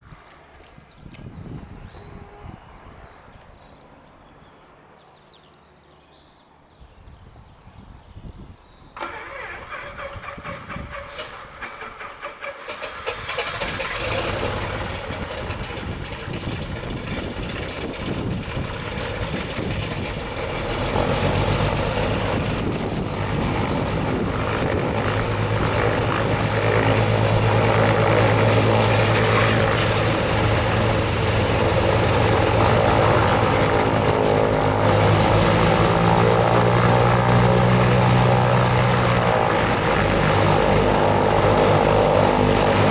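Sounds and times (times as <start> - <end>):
piston aircraft engine starting: 9.0 - 42.9
propeller engine idling: 9.0 - 42.9.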